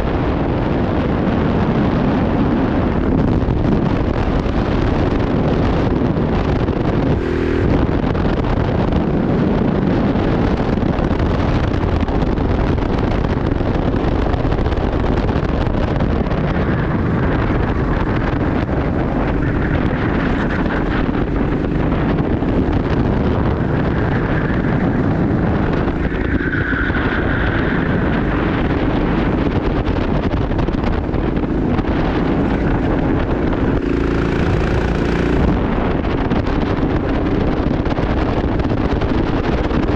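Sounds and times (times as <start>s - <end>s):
wind buffeting microphone: 0.0s - 39.9s
go-kart engine buzzing: 4.0s - 10.7s, 16.4s - 39.9s.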